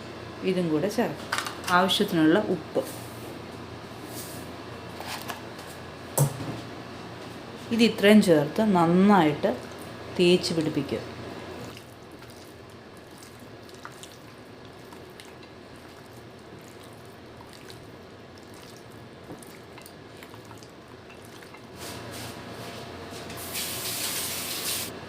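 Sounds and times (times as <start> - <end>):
hands squelching wet marinade: 11.6 - 21.8.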